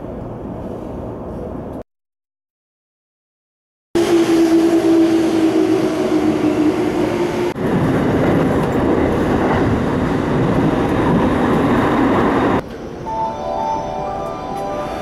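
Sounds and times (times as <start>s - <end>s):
train humming tone: 4.0s - 15.0s
train running rumble in tunnel: 4.0s - 15.0s.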